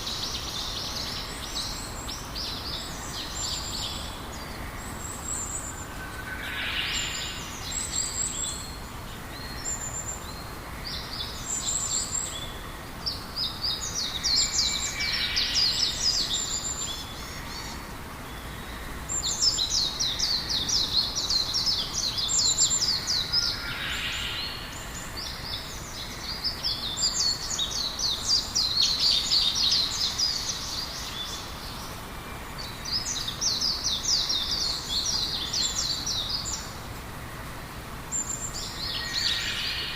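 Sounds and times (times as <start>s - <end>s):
faint background hiss: 0.0s - 39.9s
birds twittering: 38.0s - 39.9s.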